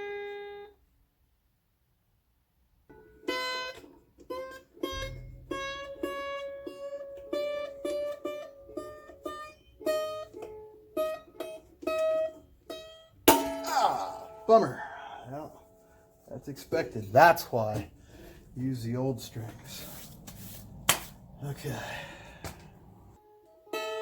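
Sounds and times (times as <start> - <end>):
mandolin string plucked: 3.3 - 14.8.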